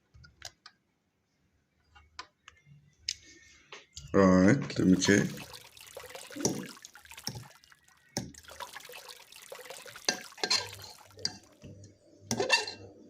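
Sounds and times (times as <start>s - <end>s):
water sloshing and dripping: 4.8s - 12.6s.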